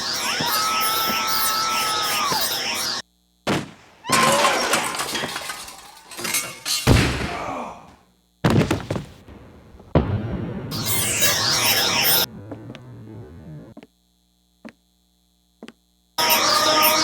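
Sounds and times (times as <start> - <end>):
crash with breaking debris: 3.5 - 7.6, 8.5 - 11.4
heavy low thud: 8.4 - 10.7.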